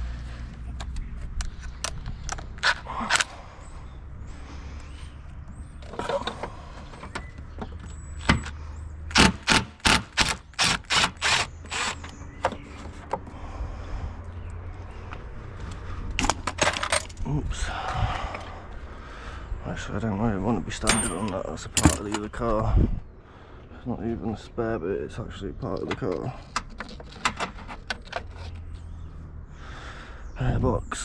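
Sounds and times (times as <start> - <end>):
hand tools clicking and knocking: 5.8 - 13.2, 20.8 - 22.4, 25.7 - 28.7.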